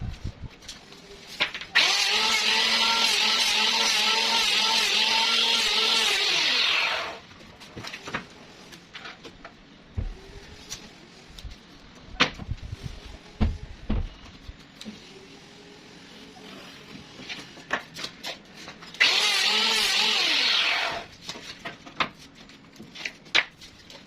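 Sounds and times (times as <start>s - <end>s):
power tool motor winding down: 1.8s - 7.2s, 19.0s - 21.1s.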